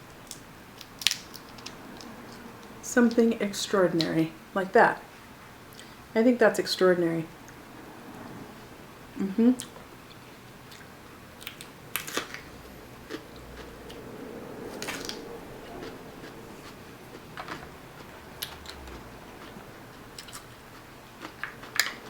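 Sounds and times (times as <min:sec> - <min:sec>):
crab shell cracking: 0:00.3 - 0:02.1
chewing and biting: 0:09.6 - 0:14.0, 0:14.7 - 0:22.0.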